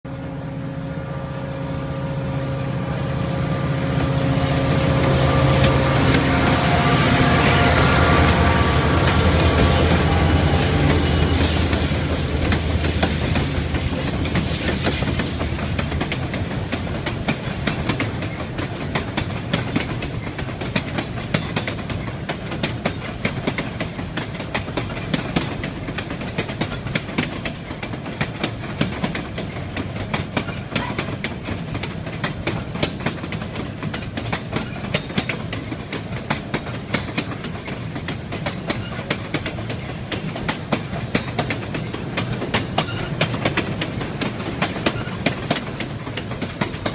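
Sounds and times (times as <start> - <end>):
train rumbling on rails: 0.1 - 46.9
wheels clicking over rail joints: 10.9 - 46.9.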